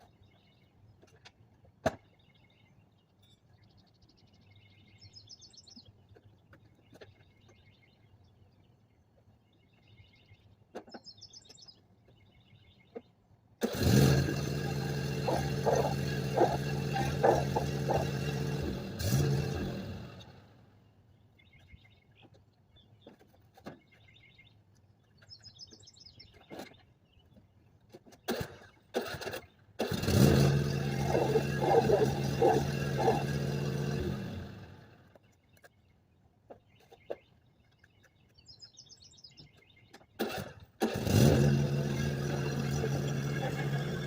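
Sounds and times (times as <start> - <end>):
birds chirping: 0.0 - 13.7, 14.4 - 44.0
lawn mower engine running: 13.6 - 20.7, 28.0 - 35.2, 40.2 - 44.0.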